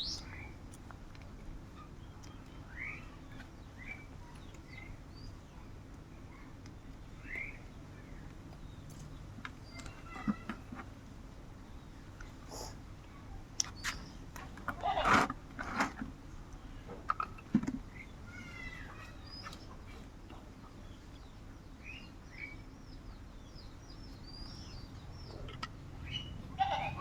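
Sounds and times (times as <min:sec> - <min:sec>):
birds chirping: 0:00.0 - 0:00.6, 0:01.7 - 0:11.0, 0:11.6 - 0:14.6, 0:17.8 - 0:27.0.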